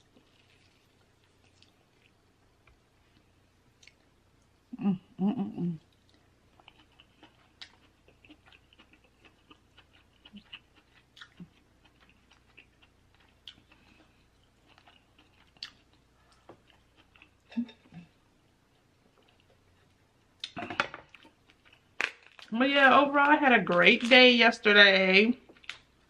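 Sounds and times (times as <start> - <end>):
chewing and wet mouth smacks: 5.8 - 17.3.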